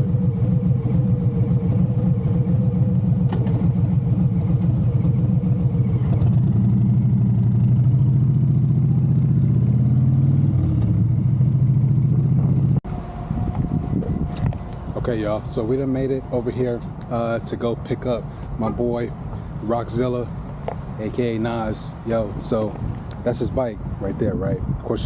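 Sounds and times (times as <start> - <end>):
motorcycle engine accelerating: 0.0 - 14.6.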